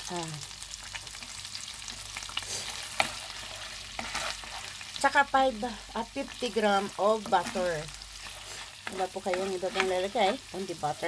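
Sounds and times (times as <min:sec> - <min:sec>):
food sizzling in hot oil: 0:00.0 - 0:11.0
wooden spatula stirring: 0:01.9 - 0:05.1, 0:06.1 - 0:11.0.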